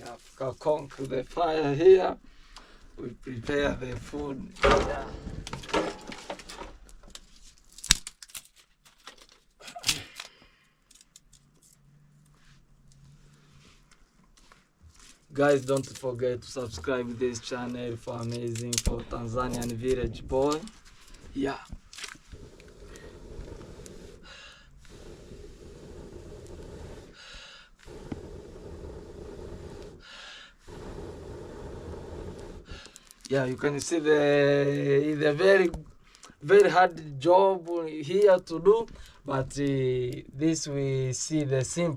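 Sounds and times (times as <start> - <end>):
fire crackling: 0.0 - 8.4, 10.9 - 41.9
sharp wood cracks: 4.6 - 11.7, 18.1 - 22.2
sharp in-breath: 9.9 - 10.9, 22.3 - 33.2
person blowing on embers: 18.8 - 36.4.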